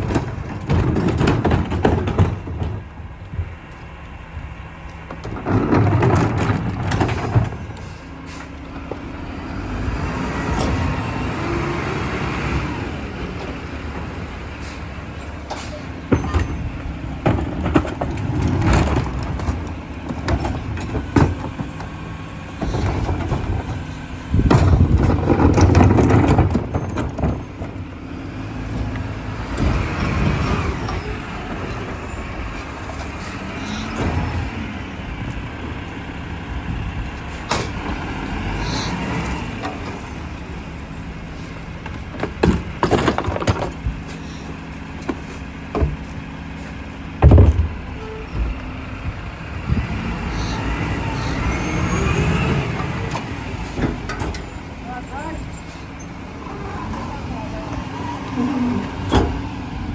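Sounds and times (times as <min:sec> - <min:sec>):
truck diesel engine revving: 0:07.6 - 0:16.0, 0:27.6 - 0:42.8, 0:43.8 - 0:59.9.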